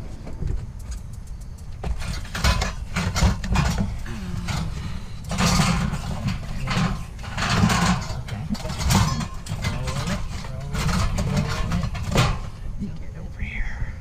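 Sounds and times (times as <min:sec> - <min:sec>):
scrap metal clattering: 0:01.8 - 0:12.8
metal scraping: 0:01.8 - 0:13.2.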